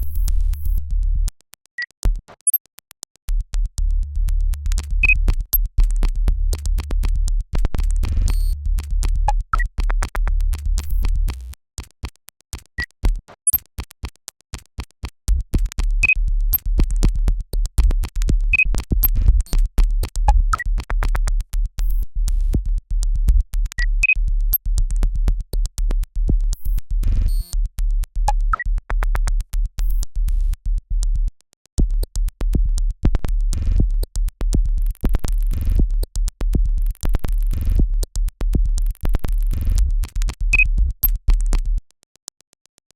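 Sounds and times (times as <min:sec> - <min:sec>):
deep bass: 0:00.0 - 0:01.3, 0:03.3 - 0:11.6, 0:15.3 - 0:41.8
rapid clicking pulses: 0:31.8 - 0:42.0.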